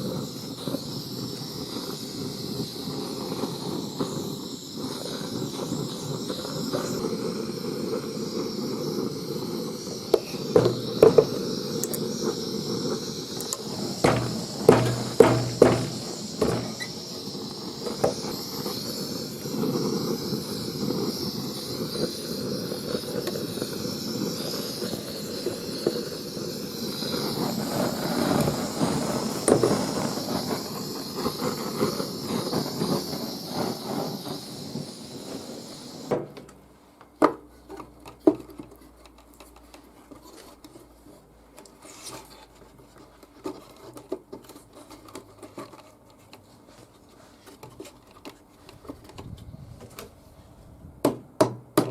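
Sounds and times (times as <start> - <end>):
sharp clicks and knocks: 13.4 - 16.9.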